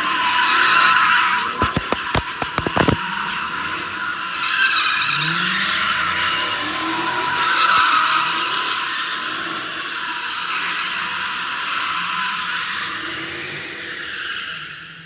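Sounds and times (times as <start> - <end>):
sharp pops: 1.6 - 3.0.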